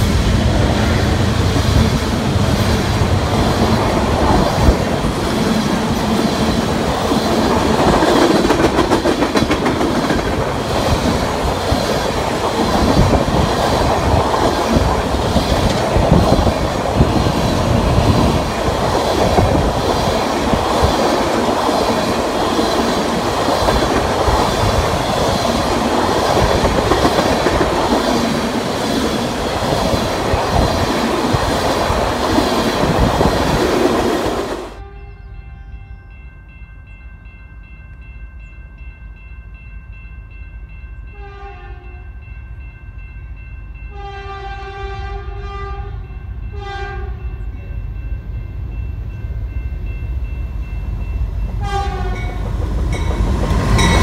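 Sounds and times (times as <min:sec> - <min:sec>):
train wheels rolling on track: 0:00.0 - 0:34.8, 0:47.3 - 0:54.0.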